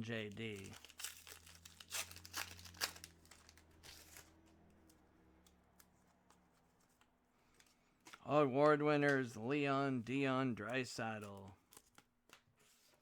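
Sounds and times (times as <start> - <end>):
wrappers crinkling and rustling: 0.0 - 5.0.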